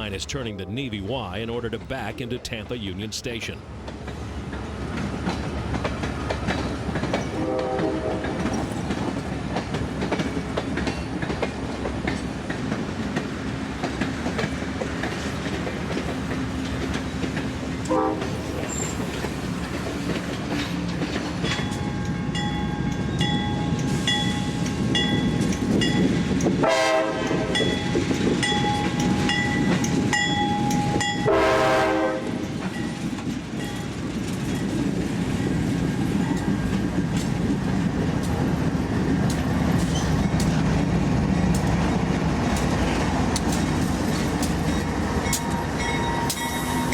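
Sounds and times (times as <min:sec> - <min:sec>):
train wheels rumbling on rails: 0:03.7 - 0:46.9
train horn blasts: 0:07.3 - 0:08.5, 0:17.8 - 0:18.4, 0:26.6 - 0:27.8, 0:31.0 - 0:32.5.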